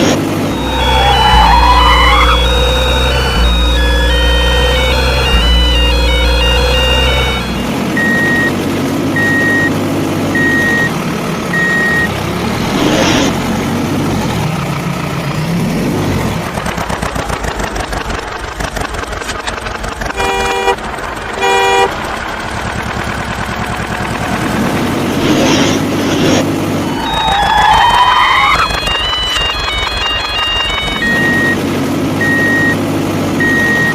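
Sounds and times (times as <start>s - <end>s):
engine pulsing rumble: 0.0s - 33.9s
short beeps: 0.5s - 8.5s, 9.2s - 9.7s, 10.4s - 10.9s, 11.6s - 12.1s, 28.2s - 31.6s, 32.2s - 32.8s, 33.4s - 33.9s
horn toots: 20.1s - 22.0s.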